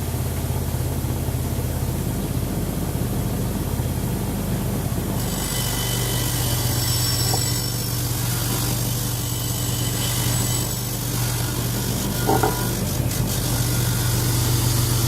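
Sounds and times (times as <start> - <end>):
electric tool motor humming: 5.2 - 15.0.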